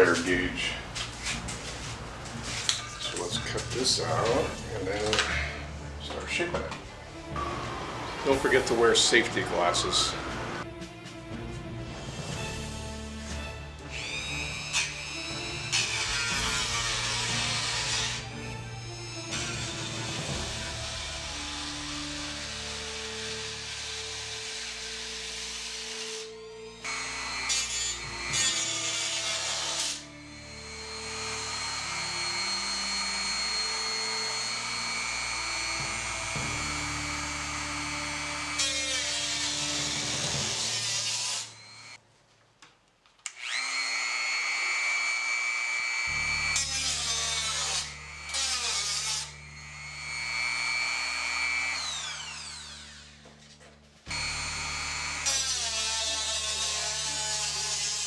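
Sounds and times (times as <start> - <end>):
background music: 0.0 - 41.9, 46.1 - 58.0
rotary tool cutting sheet metal: 13.9 - 18.3, 19.2 - 42.0, 43.3 - 53.3, 54.1 - 58.0.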